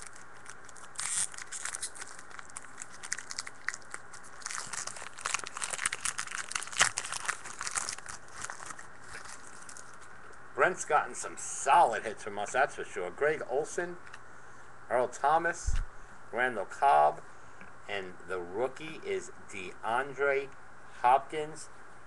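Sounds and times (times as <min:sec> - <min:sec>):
card pack wrapper crinkling and tearing: 0:00.0 - 0:10.1.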